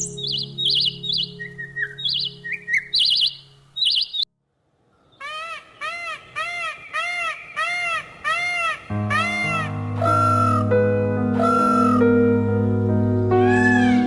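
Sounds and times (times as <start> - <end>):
low musical drone: 0.0 - 3.8
bird repeating short call: 0.0 - 4.2
small bird chirping trills: 0.0 - 4.3.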